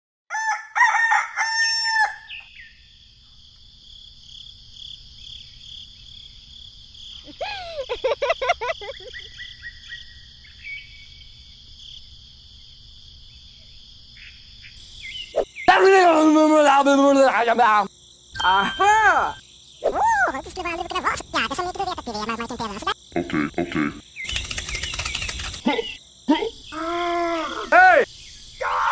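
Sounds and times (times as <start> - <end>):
rooster crowing: 0.3 - 2.4
high-pitched chirring: 18.4 - 19.4.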